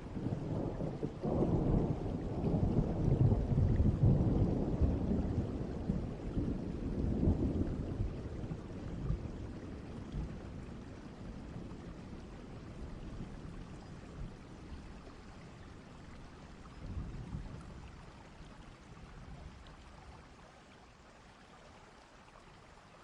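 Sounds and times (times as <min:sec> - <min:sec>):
low rolling thunder: 0:00.0 - 0:15.0, 0:15.6 - 0:17.9
steady rain: 0:00.0 - 0:23.0.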